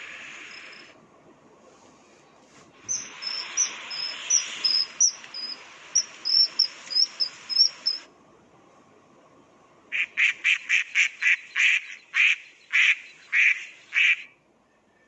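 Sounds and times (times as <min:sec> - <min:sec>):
background hiss: 0:00.0 - 0:15.0
small bird chirping: 0:02.8 - 0:08.1.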